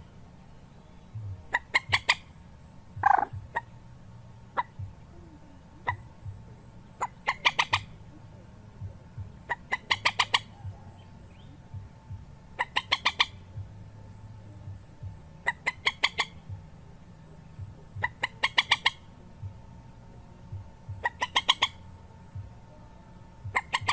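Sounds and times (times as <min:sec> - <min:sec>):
rail bird calling: 0:00.0 - 0:02.4, 0:03.0 - 0:03.8, 0:04.4 - 0:11.8, 0:12.4 - 0:14.7, 0:15.4 - 0:19.2, 0:21.0 - 0:22.8, 0:23.4 - 0:23.9
low steady hum: 0:00.0 - 0:23.9.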